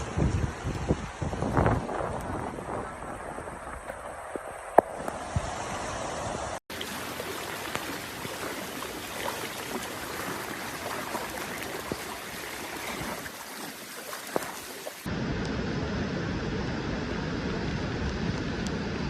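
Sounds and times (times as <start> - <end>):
water rushing: 0.0 - 15.1
small splashes: 6.7 - 15.1.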